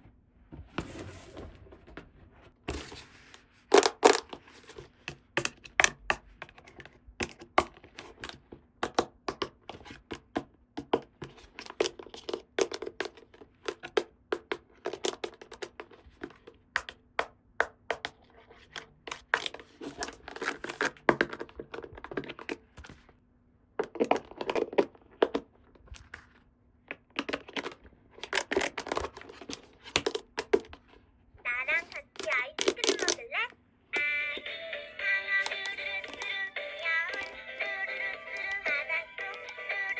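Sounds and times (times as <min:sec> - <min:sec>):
plastic pieces clicking and tapping: 0:05.1 - 0:22.6, 0:31.8 - 0:33.3, 0:35.3 - 0:39.9.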